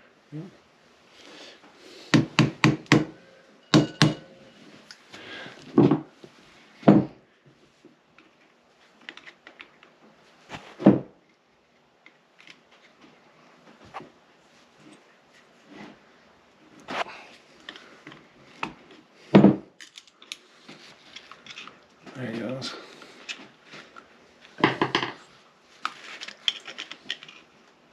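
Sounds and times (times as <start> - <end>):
hammer knocking on metal punch: 2.2 - 4.4.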